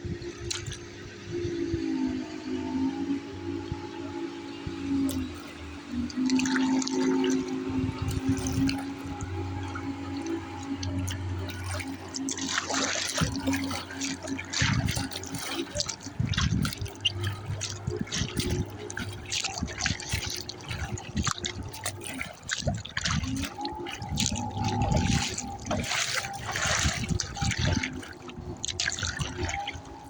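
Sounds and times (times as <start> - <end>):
water splashing against kayak hull: 0.1 - 30.0.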